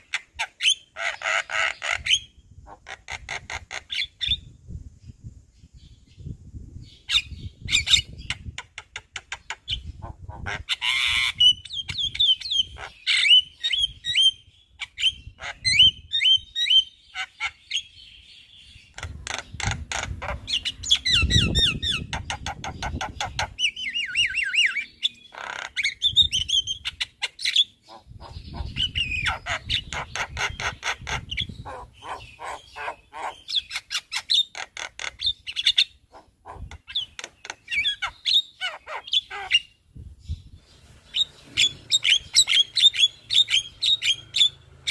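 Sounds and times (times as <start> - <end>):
bird singing chirps and whistles: 5.6 - 8.6, 10.7 - 19.5, 20.4 - 34.5, 36.8 - 44.9.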